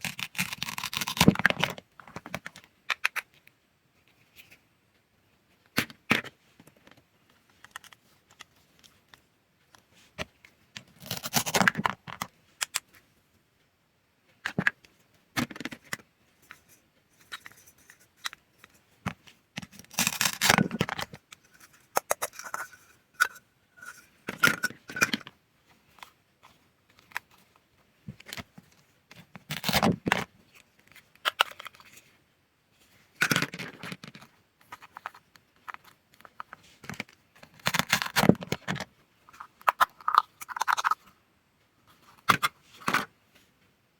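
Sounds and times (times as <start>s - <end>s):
clicks and scrapes: 14.5s - 32.1s, 33.2s - 41.2s.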